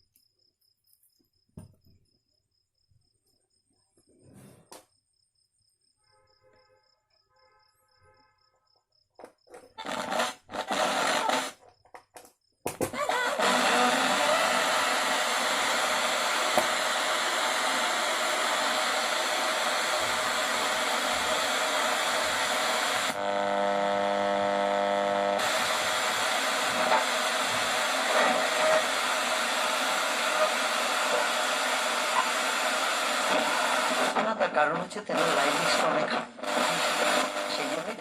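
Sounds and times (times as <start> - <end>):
radio buzzing tone: 9.8 - 11.6, 13.0 - 38.0
radio static hiss: 9.8 - 11.6, 13.1 - 38.0.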